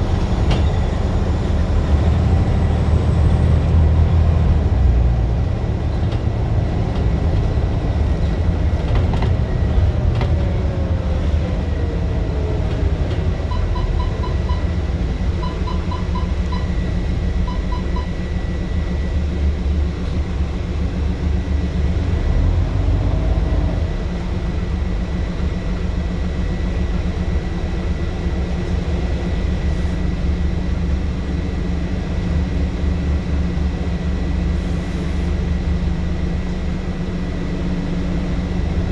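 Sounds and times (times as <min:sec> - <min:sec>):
bus engine rumble: 0:00.0 - 0:38.9
short high beeps: 0:13.5 - 0:14.8, 0:15.4 - 0:18.2.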